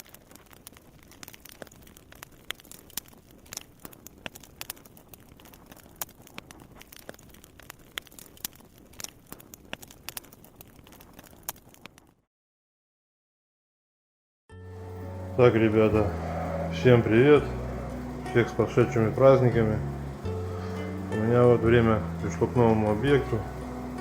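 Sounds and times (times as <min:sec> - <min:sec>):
sharp pops of fire: 0:00.0 - 0:12.2
wood fire crackling: 0:00.0 - 0:12.3, 0:14.6 - 0:24.0.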